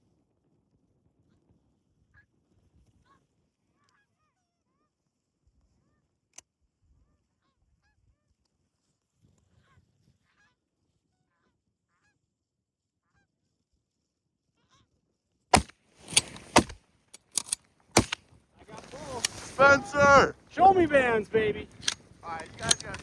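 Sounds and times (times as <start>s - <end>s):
distant geese honking: 18.7s - 23.0s.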